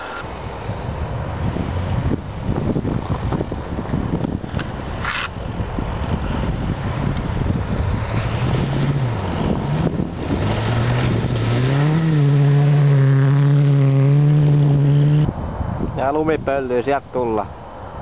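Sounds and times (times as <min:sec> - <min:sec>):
rally car engine revving: 0:07.8 - 0:15.3.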